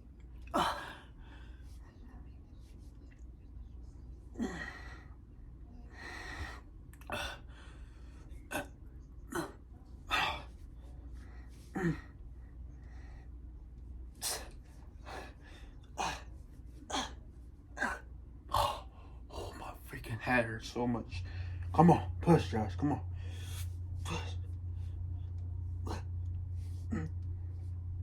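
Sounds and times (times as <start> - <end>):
man grunting: 0.6 - 1.0, 4.4 - 4.8, 7.1 - 7.4, 8.5 - 8.7, 9.3 - 10.5, 11.8 - 12.1, 16.0 - 16.3, 16.9 - 17.2, 17.8 - 19.7, 24.0 - 24.4, 25.8 - 26.1, 26.9 - 27.1.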